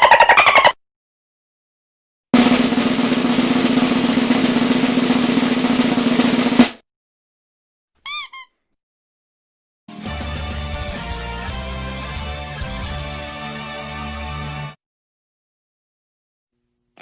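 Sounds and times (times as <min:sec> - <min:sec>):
snare drum roll: 0:02.4 - 0:06.8.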